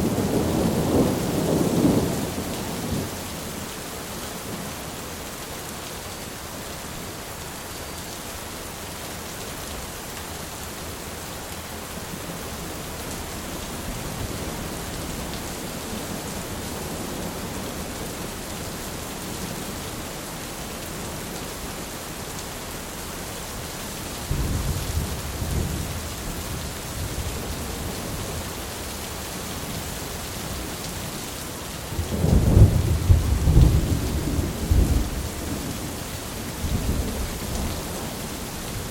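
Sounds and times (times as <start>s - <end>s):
heavy rain falling: 0.0s - 38.9s
rolling thunder: 31.9s - 35.9s.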